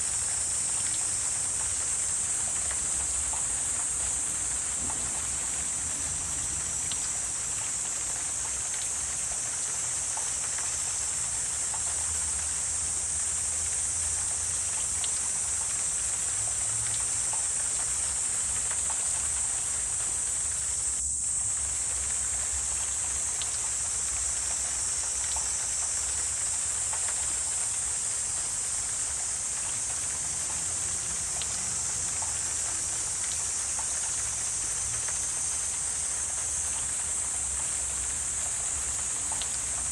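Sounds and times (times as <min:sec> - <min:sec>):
insect chorus: 0:00.0 - 0:39.9
faint ticks: 0:00.4 - 0:05.4, 0:08.4 - 0:12.9, 0:22.8 - 0:39.9.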